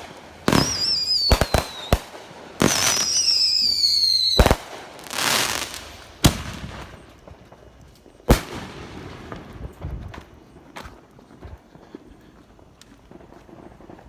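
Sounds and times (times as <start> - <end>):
firework bangs: 0.0 - 10.8
firework crackle: 0.0 - 14.0
whistling firework: 0.0 - 14.0.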